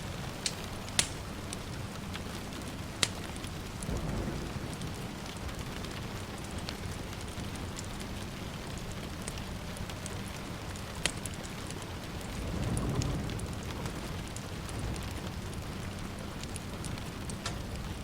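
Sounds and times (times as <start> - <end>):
steady rain falling: 0.0 - 18.0
wood fire crackling: 0.0 - 18.0
distant thunder rumble: 2.3 - 9.8, 11.9 - 18.0.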